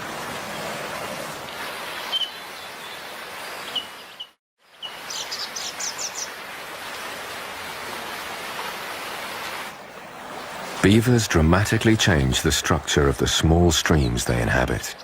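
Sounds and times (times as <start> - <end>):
stream water flowing: 0.0 - 15.0
small birds chirping: 1.9 - 6.4.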